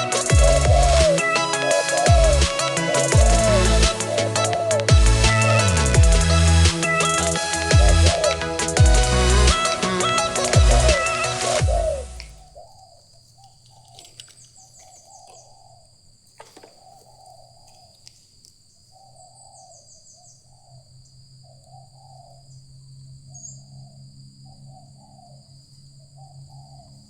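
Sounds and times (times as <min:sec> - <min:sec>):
dove cooing: 0:00.0 - 0:18.2, 0:18.9 - 0:20.9.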